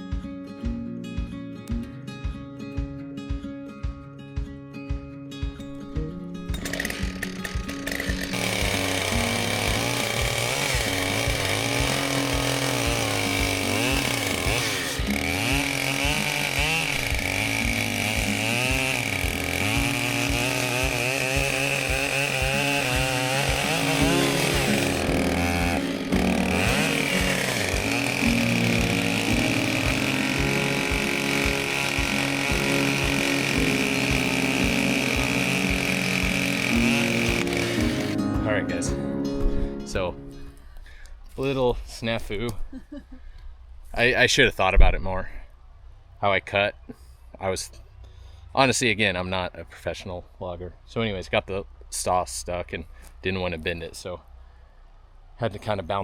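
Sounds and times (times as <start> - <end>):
background music with beat: 0.0 - 40.4
chainsaw cutting logs: 6.4 - 38.3.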